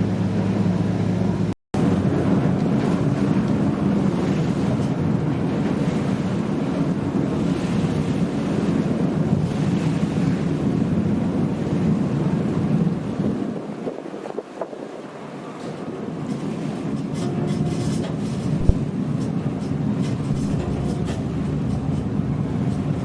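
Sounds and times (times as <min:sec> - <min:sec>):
ferry engine rumble: 0:00.0 - 0:23.0
rushing water: 0:00.0 - 0:23.0
wind noise on microphone: 0:00.0 - 0:23.0.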